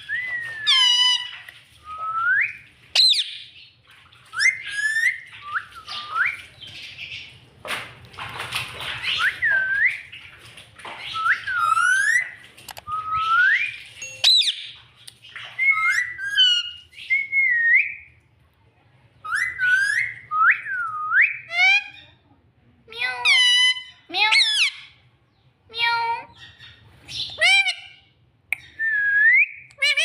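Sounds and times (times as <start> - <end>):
parrot whistling: 0.1 - 1.3, 2.2 - 3.4, 11.1 - 12.3, 13.0 - 14.8, 15.6 - 18.0.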